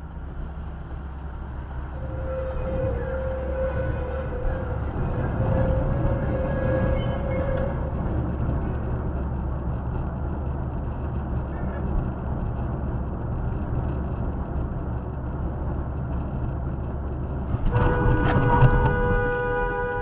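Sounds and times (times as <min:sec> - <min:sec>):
car road and engine rumble: 0:00.0 - 0:20.0
car horn held: 0:17.6 - 0:20.0.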